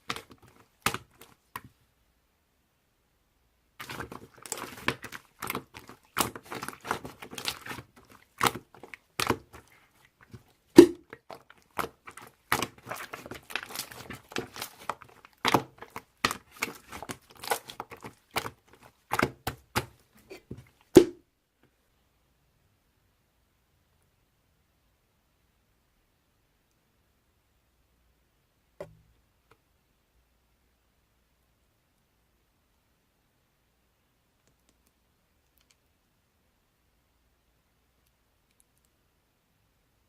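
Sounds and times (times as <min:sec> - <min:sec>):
hands squishing sticky slime: 0:00.0 - 0:01.8, 0:03.8 - 0:21.2
deep slime pops: 0:10.8 - 0:11.1.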